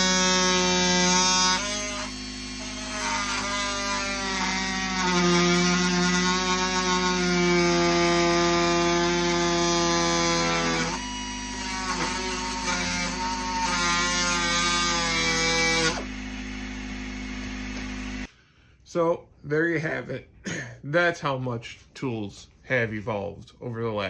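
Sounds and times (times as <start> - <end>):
oscillating multi-tool cutting screw: 0.0 - 18.2.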